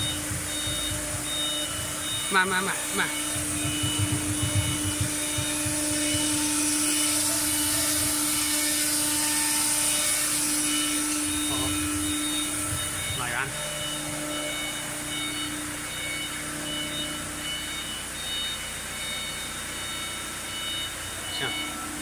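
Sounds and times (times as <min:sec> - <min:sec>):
irregular low knocks: 0:00.0 - 0:07.0, 0:11.3 - 0:17.6
router spindle humming: 0:00.0 - 0:22.0.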